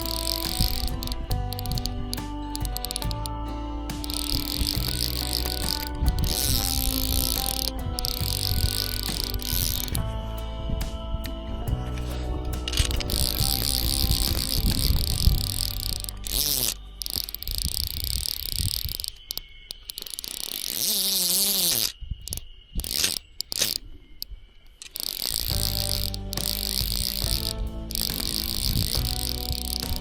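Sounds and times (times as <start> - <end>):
background music of held notes: 0.0 - 17.6, 25.5 - 30.0
high-pitched insect chorus: 0.0 - 30.0.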